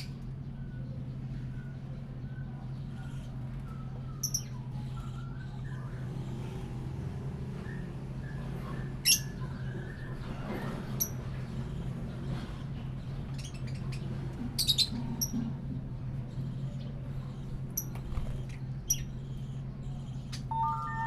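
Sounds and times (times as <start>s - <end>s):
steady low hum: 0.0s - 21.0s
parrots chirping and squawking: 9.0s - 15.5s, 16.4s - 21.0s.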